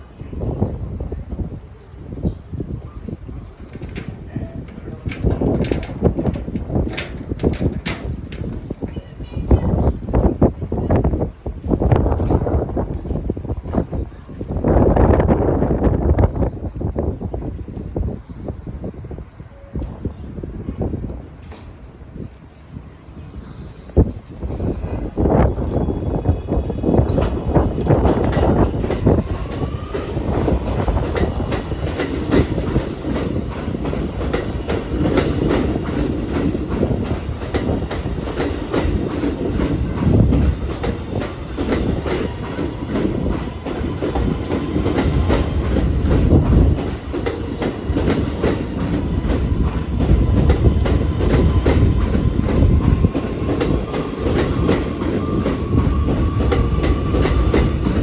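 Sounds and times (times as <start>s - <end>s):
train wheels clattering over rails: 3.4s - 10.7s, 24.2s - 58.0s.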